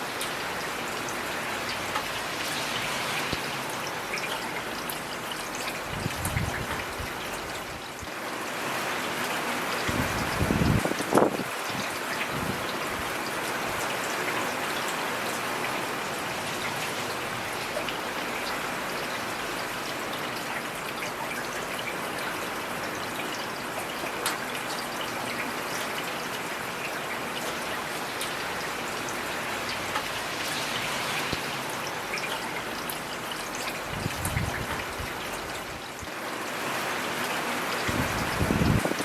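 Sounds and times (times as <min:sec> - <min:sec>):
heavy rain hissing: 0:00.6 - 0:04.1, 0:27.8 - 0:39.0.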